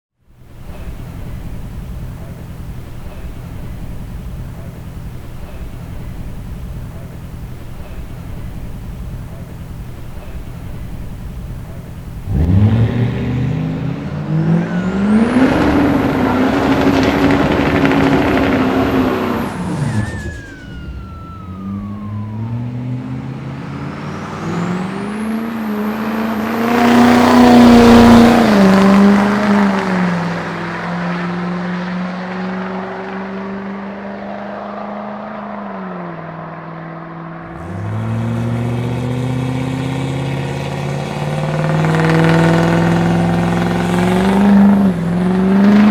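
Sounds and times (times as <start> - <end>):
diesel engine pulling hard: 0.3 - 45.9.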